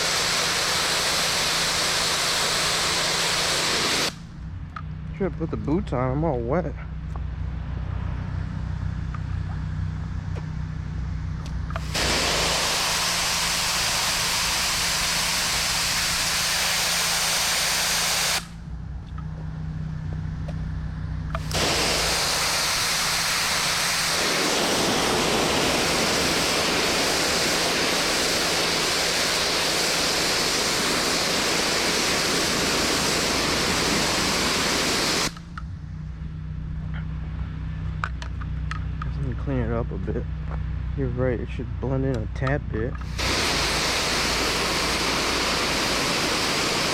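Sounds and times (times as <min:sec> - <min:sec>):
pressure washer engine running: 0:00.0 - 0:04.2, 0:11.7 - 0:18.6, 0:21.3 - 0:35.5, 0:43.0 - 0:46.9
water spray hissing on concrete: 0:00.0 - 0:04.2, 0:11.8 - 0:18.5, 0:21.4 - 0:35.5, 0:43.0 - 0:46.9.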